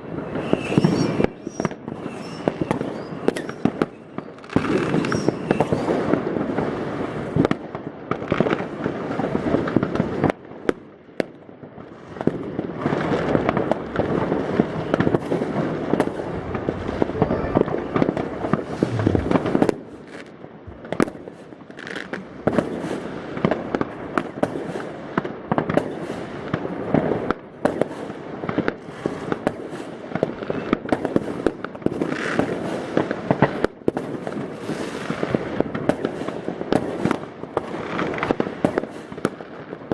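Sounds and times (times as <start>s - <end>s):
firework crackle: 0.0s - 39.9s
firework bangs: 12.1s - 39.3s.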